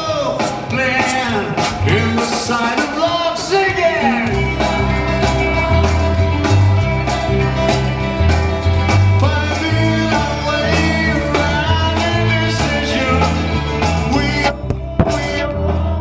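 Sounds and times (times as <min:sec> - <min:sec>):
rock band playing: 0:00.0 - 0:15.3
pulsing bass line: 0:04.2 - 0:16.0.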